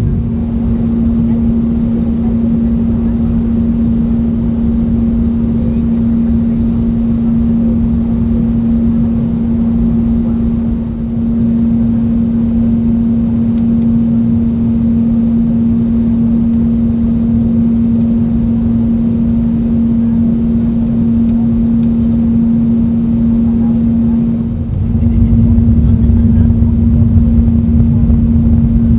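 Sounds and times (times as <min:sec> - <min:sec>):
airplane cabin hum: 0:00.0 - 0:28.9.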